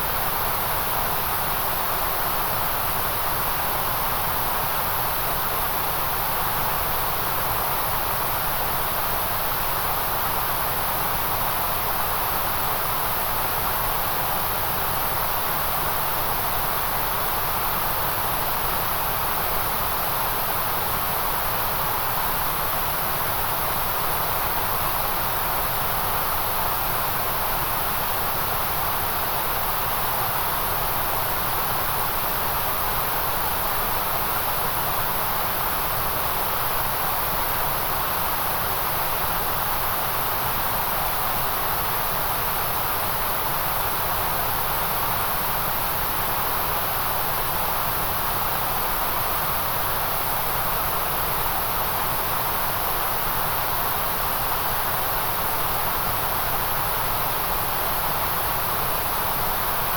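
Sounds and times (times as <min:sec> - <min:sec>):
steady white-noise hiss: 0:00.0 - 0:59.9.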